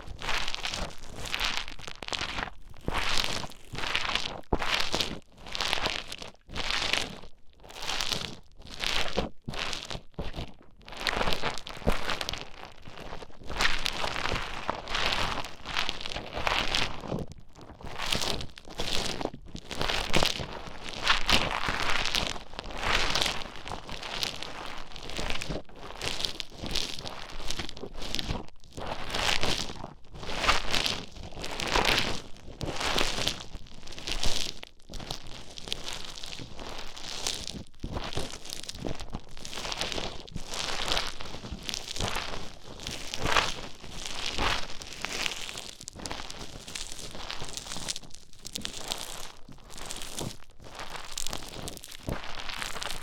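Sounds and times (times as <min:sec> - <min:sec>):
foam crackling and crinkling: 0:00.0 - 0:53.0
foam beads squeezed crinkling: 0:38.2 - 0:53.0.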